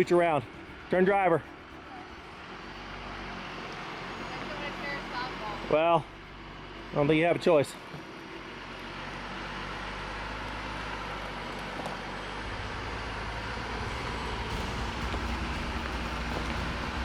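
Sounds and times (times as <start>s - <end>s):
off-road vehicle engine crawling: 0.0s - 17.0s.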